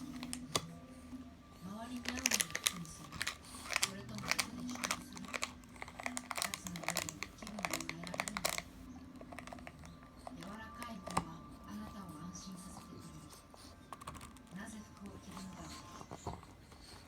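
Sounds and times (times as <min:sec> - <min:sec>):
dog chewing toy: 0:00.0 - 0:01.1, 0:01.9 - 0:17.0
plastic bottle crinkling: 0:02.0 - 0:09.9.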